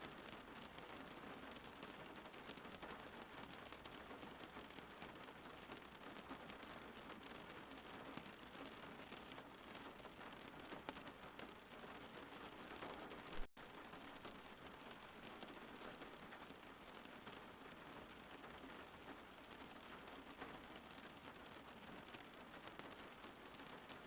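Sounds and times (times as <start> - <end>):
faint rain falling: 0.0 - 24.0.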